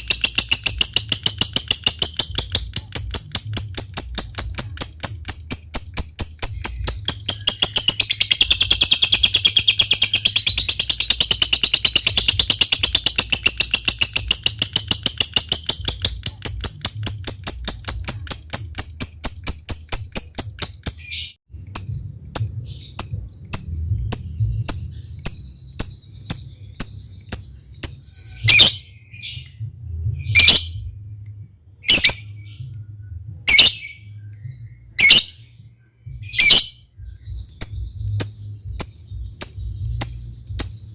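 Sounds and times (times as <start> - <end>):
lovebird shrill calls: 0.0 - 21.9, 35.0 - 35.4, 36.3 - 36.8
lovebird chattering trill: 0.0 - 29.5, 31.8 - 32.6, 35.0 - 35.4, 36.3 - 40.9
steady low hum: 21.5 - 40.9.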